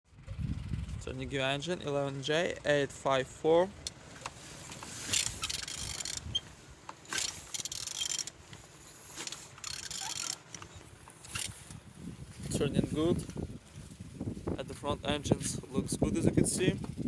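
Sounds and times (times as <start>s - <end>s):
engine turned over by hand: 3.9s - 11.7s.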